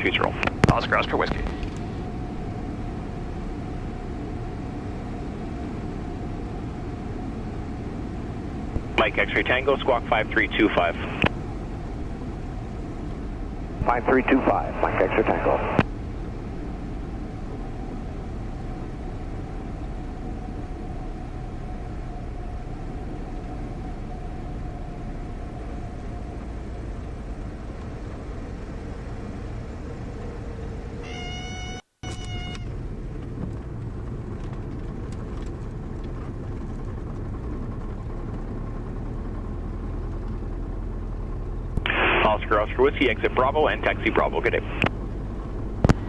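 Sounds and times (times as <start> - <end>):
airplane engine cabin noise: 0.0 - 46.0
stall warning horn wailing: 30.9 - 32.9.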